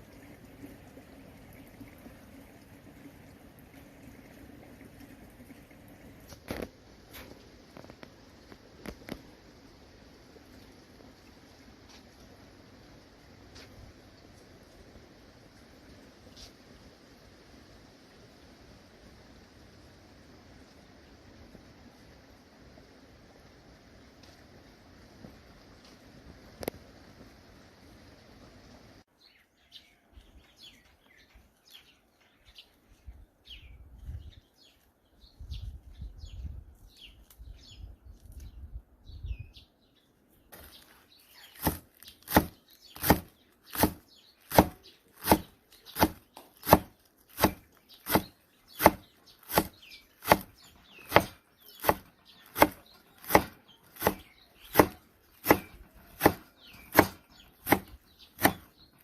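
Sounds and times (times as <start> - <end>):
birds chirping: 29.2 - 59.0.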